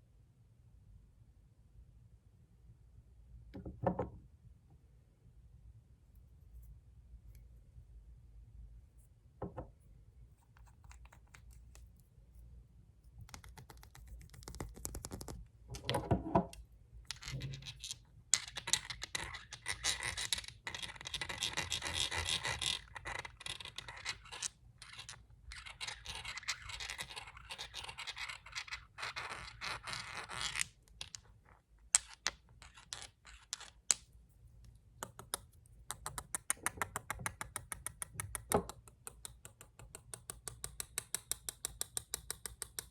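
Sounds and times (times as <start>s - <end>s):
knock: 9.4s - 9.7s.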